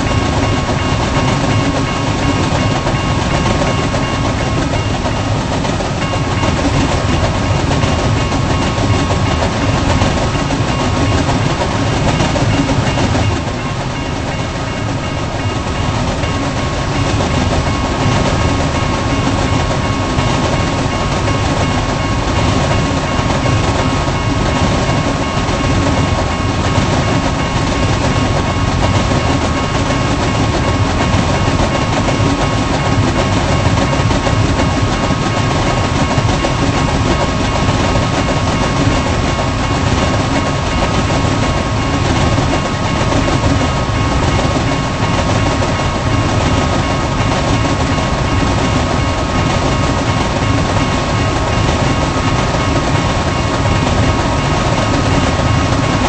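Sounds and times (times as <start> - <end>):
freight train wheels rumbling: 0.0 - 56.0
wheels clickety-clack: 0.0 - 56.0.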